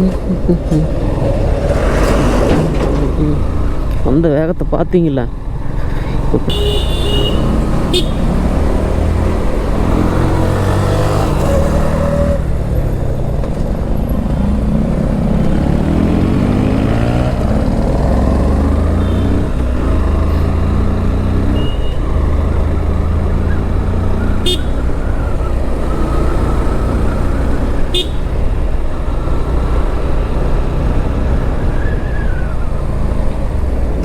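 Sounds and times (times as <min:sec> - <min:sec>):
motorcycle engine running: 0:05.4 - 0:22.4, 0:23.2 - 0:31.2.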